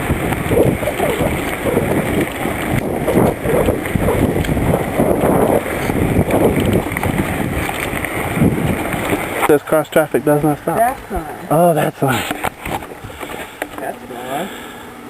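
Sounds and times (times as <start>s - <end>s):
wind buffeting microphone: 0.0s - 11.3s
bicycle riding noise: 0.0s - 14.9s.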